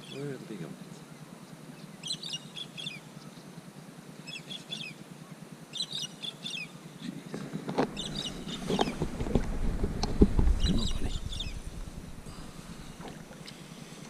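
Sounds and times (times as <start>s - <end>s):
faint low hum: 7.0s - 14.0s
bird chirping: 7.9s - 9.4s, 10.0s - 13.6s.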